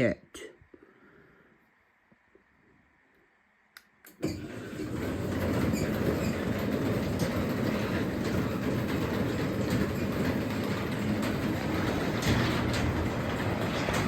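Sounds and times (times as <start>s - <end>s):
garage door opener running: 4.1s - 14.0s
door rattling and clicking: 4.2s - 14.0s.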